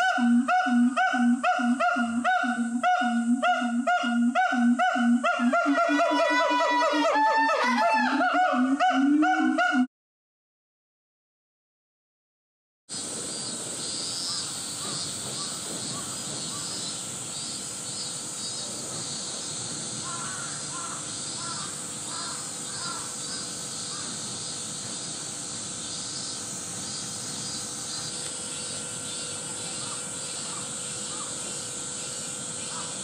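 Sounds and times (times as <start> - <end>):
outdoor hiss: 12.9 - 33.0
faint bird calls: 13.8 - 25.2, 26.2 - 33.0.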